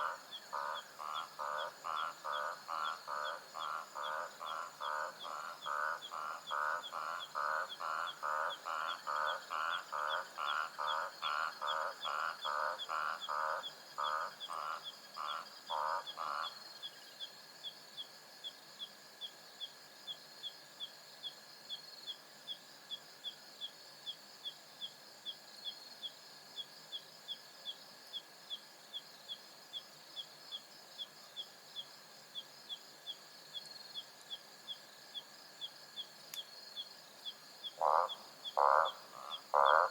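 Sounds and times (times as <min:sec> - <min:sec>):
insects trilling: 0:00.0 - 0:39.9
animal calling loudly: 0:37.8 - 0:39.9.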